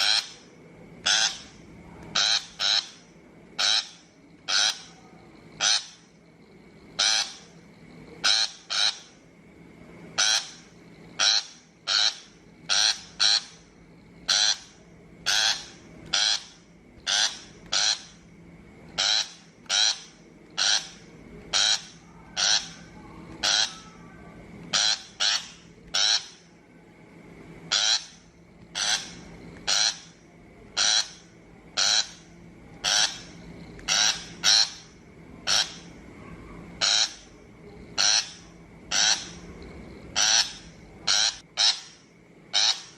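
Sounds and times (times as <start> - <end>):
bird giving harsh calls: 0.0 - 4.9, 5.6 - 6.1, 7.0 - 7.5, 8.2 - 9.2, 10.2 - 13.6, 14.2 - 18.2, 19.0 - 24.0, 24.7 - 26.5, 27.7 - 30.2, 30.8 - 36.0, 36.8 - 37.3, 38.0 - 39.4, 40.2 - 42.9.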